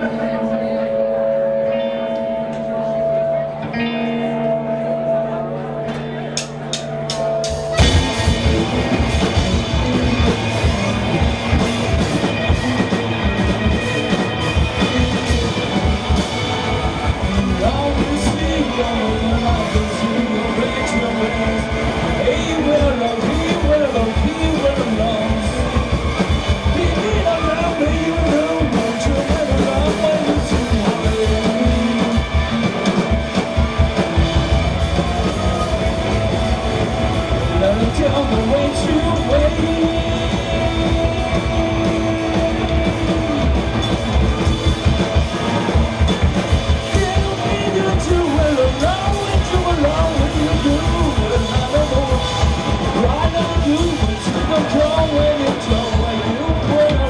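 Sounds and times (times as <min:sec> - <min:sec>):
bending guitar melody: 0:00.0 - 0:57.0
live rock band playing: 0:00.0 - 0:57.0
drum kit beat: 0:06.4 - 0:57.0.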